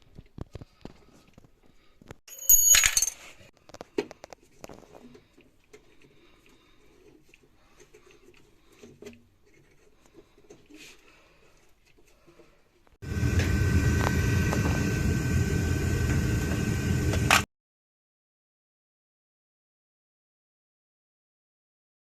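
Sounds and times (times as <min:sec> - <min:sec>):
small metal objects clinking: 0:02.3 - 0:03.4.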